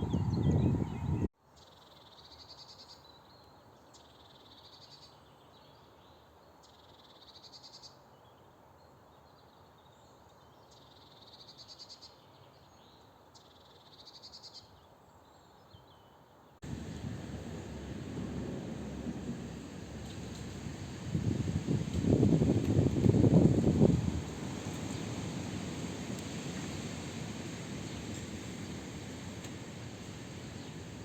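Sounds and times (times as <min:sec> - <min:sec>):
background hiss: 0:16.6 - 0:31.0.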